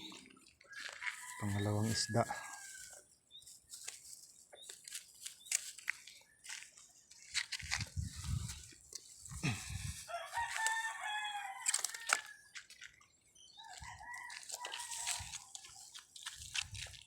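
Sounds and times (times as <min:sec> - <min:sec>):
rooster crowing: 0:00.7 - 0:03.0, 0:10.1 - 0:12.5, 0:13.6 - 0:15.4.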